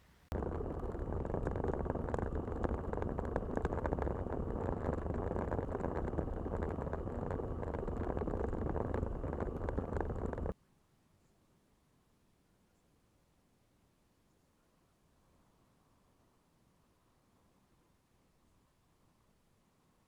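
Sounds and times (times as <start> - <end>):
small rattles and ticks: 0.3 - 10.6
wind and road rumble: 0.3 - 10.6.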